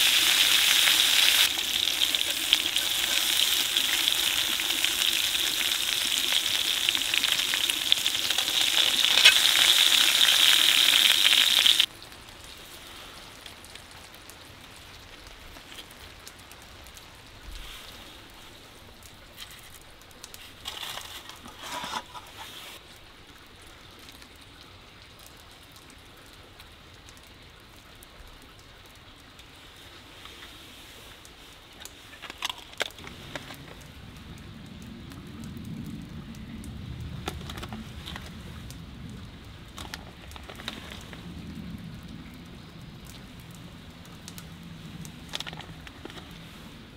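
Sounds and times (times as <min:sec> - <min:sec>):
food sizzling in a pan: 0:00.0 - 0:11.9
soft crackles and clicks: 0:00.0 - 0:46.9.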